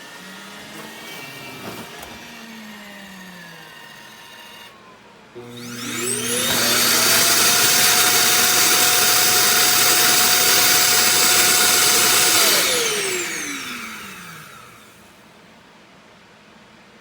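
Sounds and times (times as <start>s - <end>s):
vacuum motor whine: 0.0s - 15.3s.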